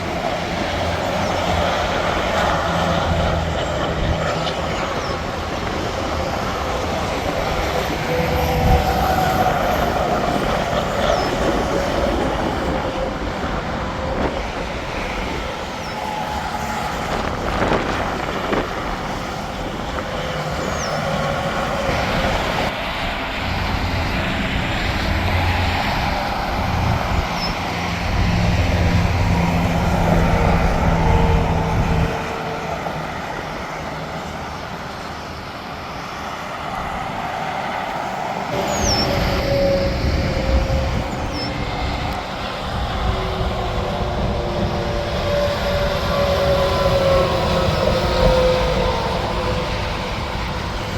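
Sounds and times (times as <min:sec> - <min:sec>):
heavy truck engine: 0:00.0 - 0:50.9
highway traffic passing: 0:00.0 - 0:50.9.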